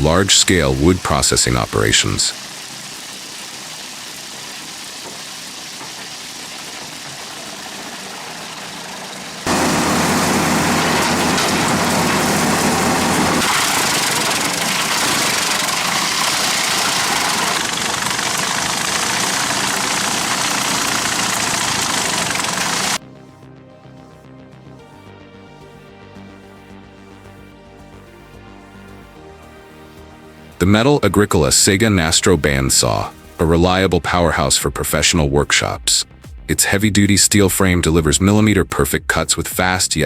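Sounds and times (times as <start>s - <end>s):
wood chipper running: 0.0s - 23.0s.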